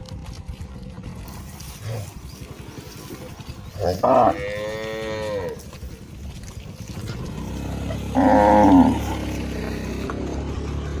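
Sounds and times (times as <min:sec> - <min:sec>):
low steady rumble: 0:00.0 - 0:10.6
cow mooing: 0:03.7 - 0:05.9, 0:06.8 - 0:10.0.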